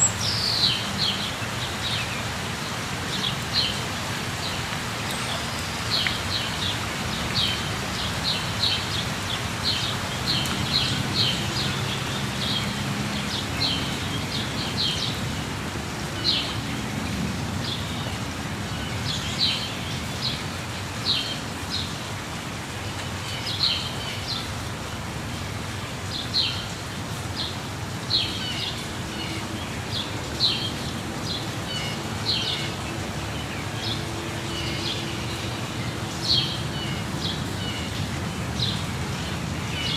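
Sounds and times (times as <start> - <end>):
birds chirping: 0.0 - 3.8, 27.4 - 39.9
waterfall rushing: 0.0 - 39.9.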